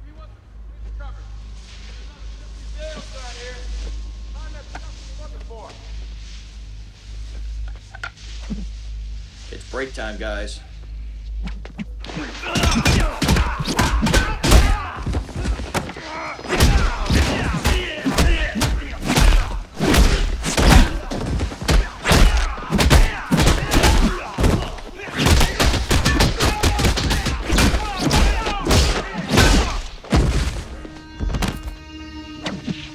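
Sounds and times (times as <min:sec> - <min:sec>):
punch and kick impact effects: 0:16.5 - 0:30.8.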